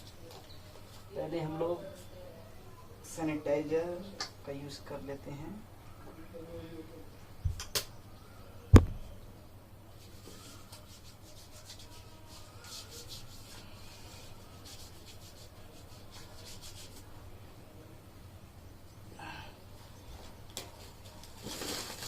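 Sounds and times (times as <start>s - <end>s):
hands rubbing together: 10.0s - 17.1s.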